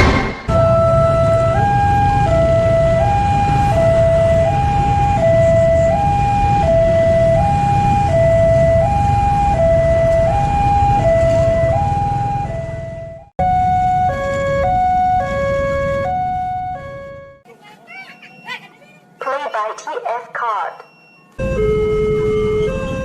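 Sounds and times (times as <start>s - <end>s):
low rumble: 0.0s - 13.3s
two-tone siren: 0.0s - 17.4s, 20.6s - 23.0s.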